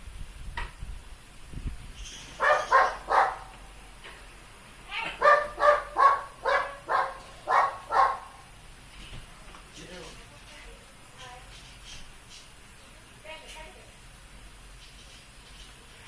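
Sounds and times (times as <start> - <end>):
dog barking: 2.4 - 3.5, 5.2 - 8.4.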